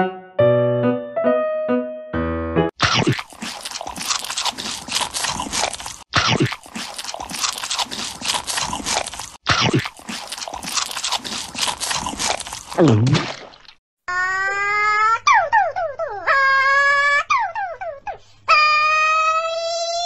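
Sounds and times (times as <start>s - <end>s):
crunching and chewing food: 2.8s - 13.7s.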